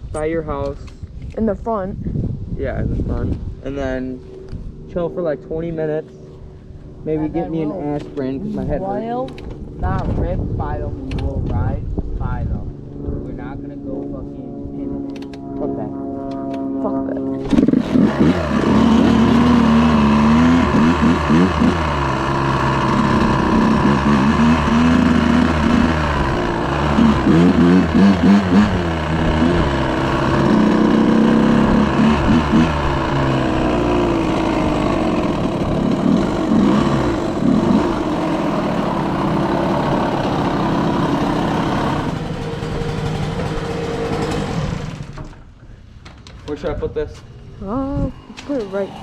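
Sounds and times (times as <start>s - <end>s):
dirt bike engine revving: 14.5s - 45.5s, 47.1s - 49.0s.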